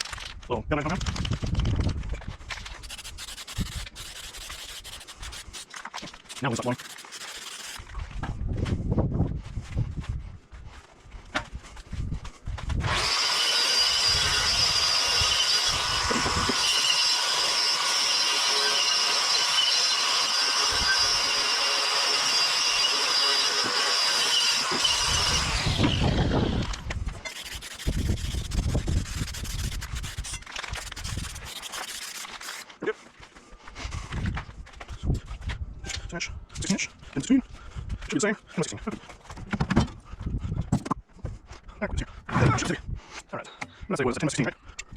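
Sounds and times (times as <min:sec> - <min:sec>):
power tool spinning down: 0:12.8 - 0:32.6.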